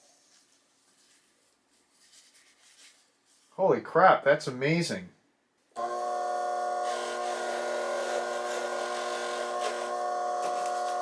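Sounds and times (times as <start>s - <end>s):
bench grinder motor whining: 5.8s - 11.0s
rushing hiss on buffing wheel: 6.8s - 11.0s.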